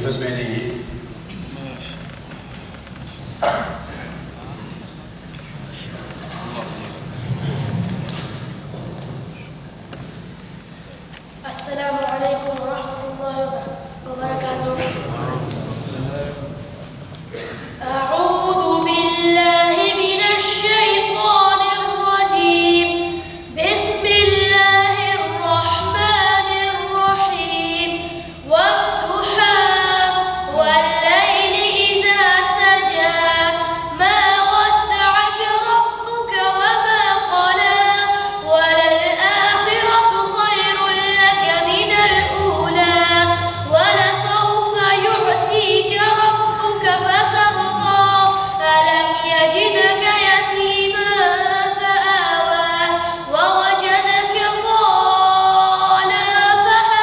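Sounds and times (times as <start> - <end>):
boy chanting melodically: 11.4 - 16.6, 17.4 - 57.0.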